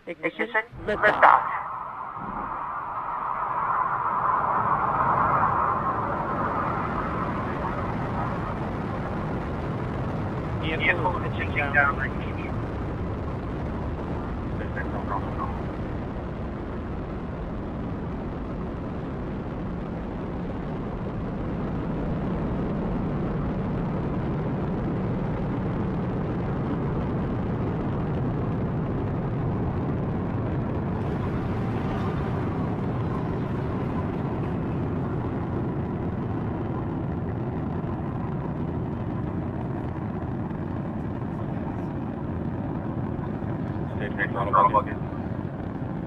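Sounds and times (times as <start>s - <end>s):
rocket engines rumbling: 0.0s - 46.0s.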